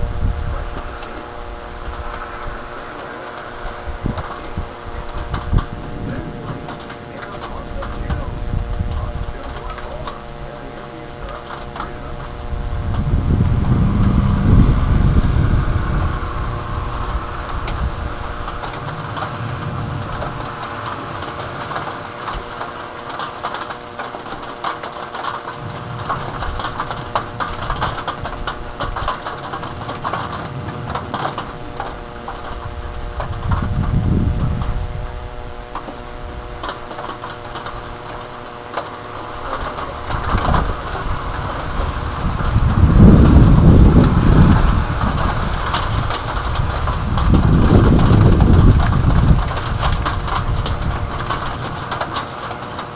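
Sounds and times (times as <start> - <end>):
low thunder rumbles: 0.0 - 24.0, 25.6 - 38.5, 39.1 - 52.8
heavy rain and hail pelting: 0.0 - 52.9
steady multi-tone hum: 0.0 - 52.9.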